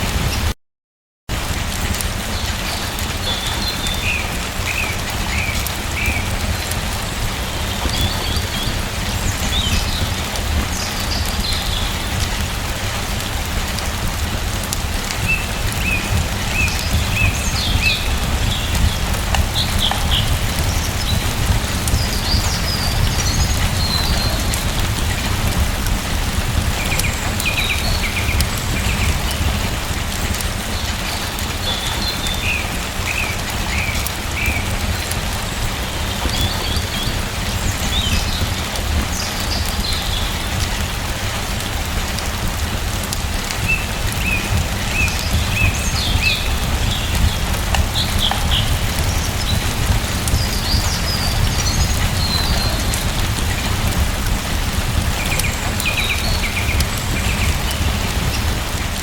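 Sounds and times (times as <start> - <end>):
steady rain falling: 0.0 - 0.6, 1.3 - 59.0
small birds chirping: 2.4 - 42.5, 43.4 - 59.0.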